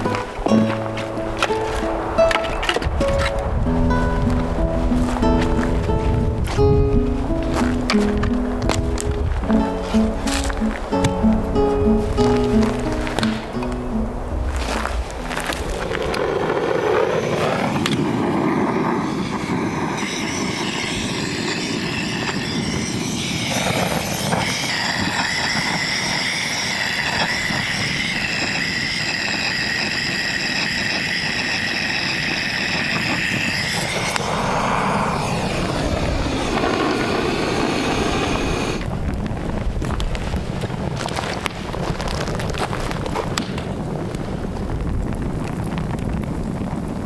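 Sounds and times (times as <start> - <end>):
road noise: 0.0 - 23.8, 32.2 - 39.1
high whine: 0.0 - 38.9.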